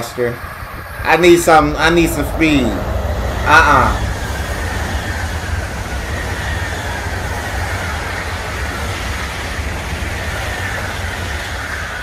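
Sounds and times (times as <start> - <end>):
faint falling whine: 0.0 - 12.0
train rumbling past: 0.0 - 12.0.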